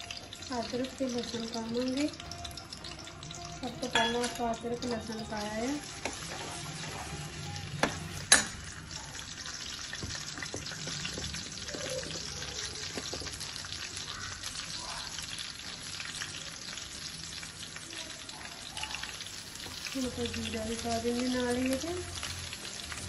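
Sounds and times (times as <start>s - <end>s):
ginger and garlic sizzling in oil: 0.0s - 23.0s
ladle clinking against pan: 3.8s - 4.4s.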